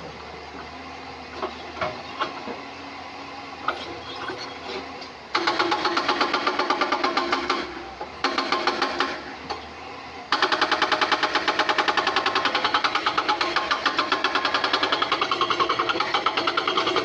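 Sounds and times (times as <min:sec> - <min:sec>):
excavator engine running: 0:00.0 - 0:17.0
hydraulic breaker hammering stone: 0:05.3 - 0:09.3, 0:10.3 - 0:17.0.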